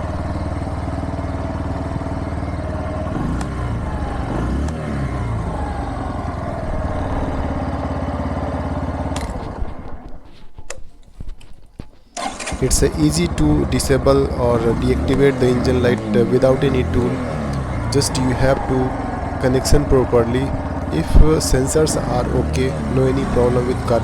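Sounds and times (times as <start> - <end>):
motorcycle engine idling: 0.0 - 10.4, 12.2 - 24.0.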